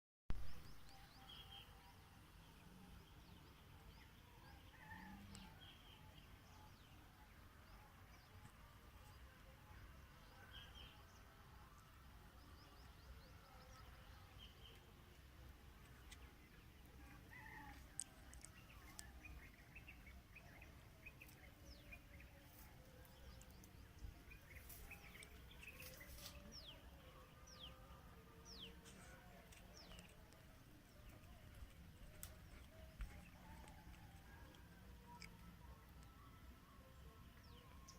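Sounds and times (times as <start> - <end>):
birds chirping: 12.3 - 37.9.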